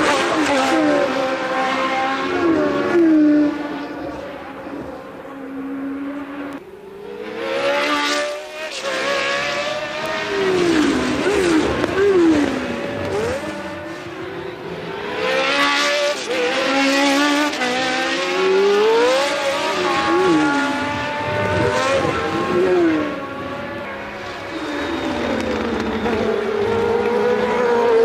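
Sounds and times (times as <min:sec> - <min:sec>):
racing car engines revving: 0:00.0 - 0:28.0.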